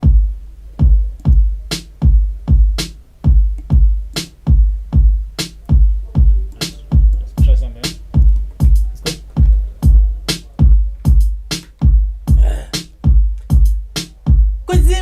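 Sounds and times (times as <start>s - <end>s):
deep kick drum: 0.0s - 15.0s
sharp snare or clap: 11.5s - 11.8s.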